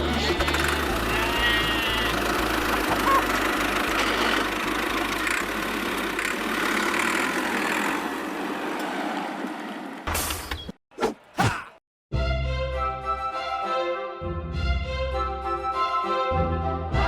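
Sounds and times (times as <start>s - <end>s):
small motor running: 0.0s - 8.2s.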